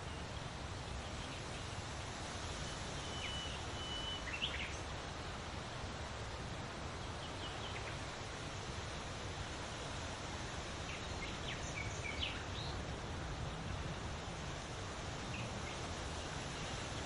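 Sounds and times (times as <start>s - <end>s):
whistled bird notes: 3.0s - 4.7s.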